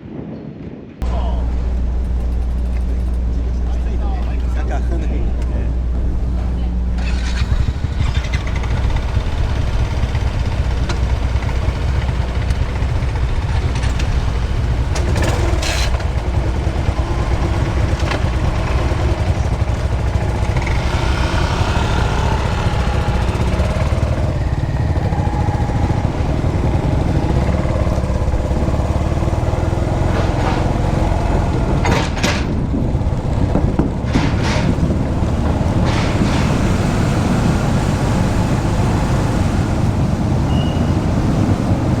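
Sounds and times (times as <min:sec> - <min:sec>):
low engine rumble: 0:01.0 - 0:42.0.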